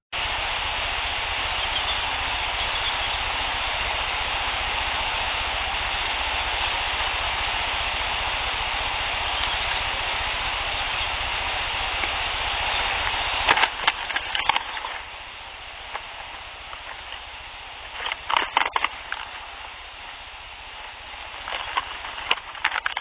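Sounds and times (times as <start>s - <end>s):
recorder hiss: 0.1s - 23.0s
low rumble: 0.2s - 23.0s.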